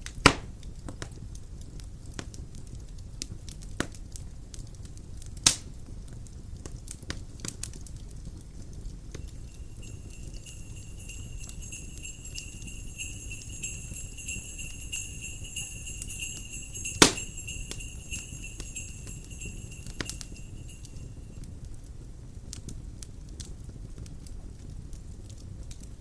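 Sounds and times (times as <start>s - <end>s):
sleigh bells shaking: 9.2s - 21.4s.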